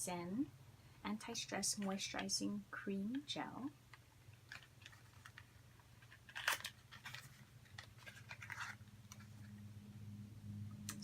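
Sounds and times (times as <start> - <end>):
low steady hum: 0.0 - 11.0
package crinkling and clicking: 3.9 - 9.4.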